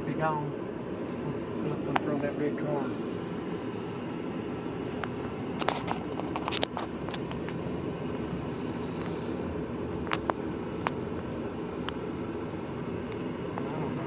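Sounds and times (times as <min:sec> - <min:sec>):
vehicle engine and road rumble: 0:00.0 - 0:14.0.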